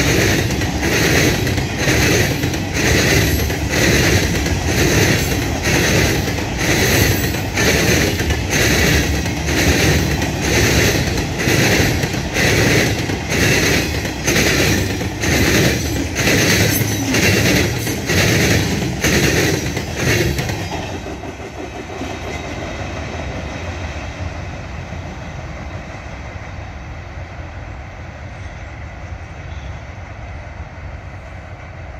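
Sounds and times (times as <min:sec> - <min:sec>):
train wheels clattering on rails: 0:00.0 - 0:26.7
train rumble: 0:00.0 - 0:31.9.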